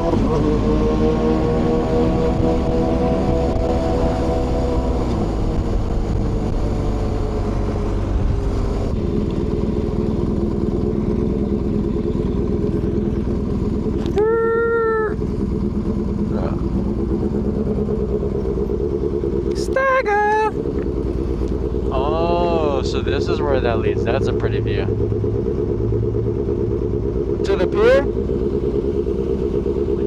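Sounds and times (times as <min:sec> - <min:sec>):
motorcycle engine cruising: 0:00.0 - 0:30.0.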